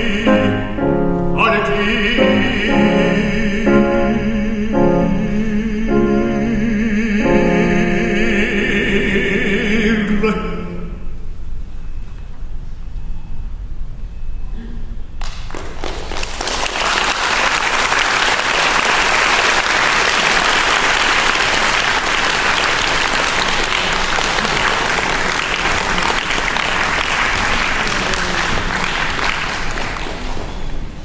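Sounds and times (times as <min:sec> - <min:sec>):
audience applauding: 0:15.2 - 0:30.8.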